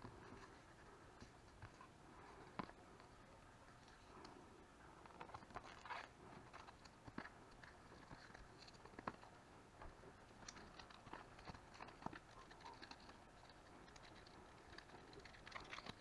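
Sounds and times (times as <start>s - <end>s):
small objects clicking and scraping: 10.4s - 16.0s.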